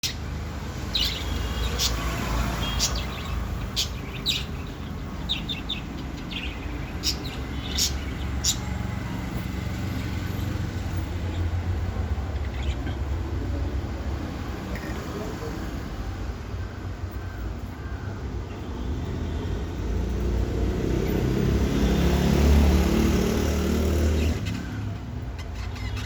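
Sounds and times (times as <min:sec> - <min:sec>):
budgerigars chirping: 0:00.8 - 0:08.9, 0:10.0 - 0:13.1, 0:24.2 - 0:26.0.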